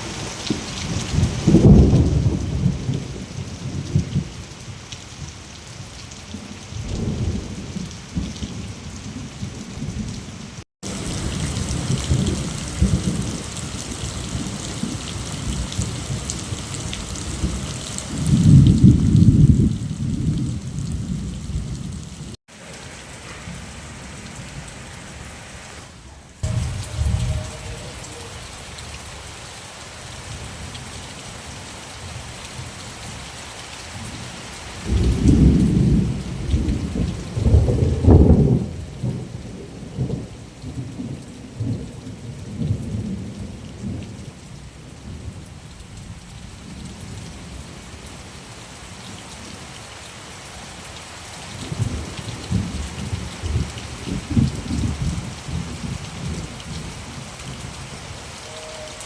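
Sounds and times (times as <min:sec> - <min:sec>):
steady rain: 0:00.0 - 0:59.0
rolling thunder: 0:00.2 - 0:04.5, 0:06.3 - 0:24.9, 0:26.4 - 0:28.2, 0:34.8 - 0:44.0, 0:51.6 - 0:58.9.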